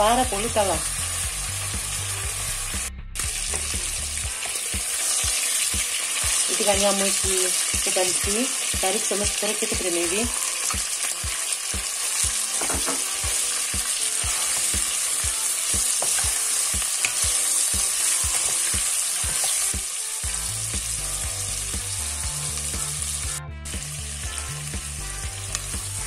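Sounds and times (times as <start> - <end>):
meat and onion sizzling in oil: 0.0 - 26.0.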